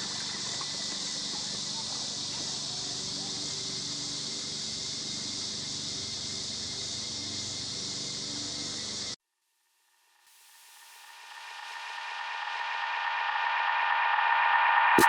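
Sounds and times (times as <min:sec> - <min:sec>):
high-pitched hiss: 0:00.0 - 0:09.2.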